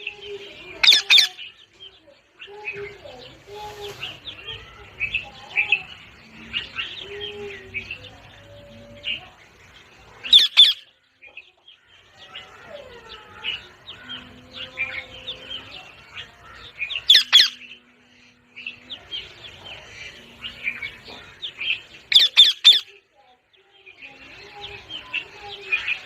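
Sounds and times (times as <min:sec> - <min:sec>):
parrot chirping and chattering: 0:00.7 - 0:01.6, 0:10.2 - 0:11.0, 0:12.3 - 0:17.8, 0:18.8 - 0:23.0.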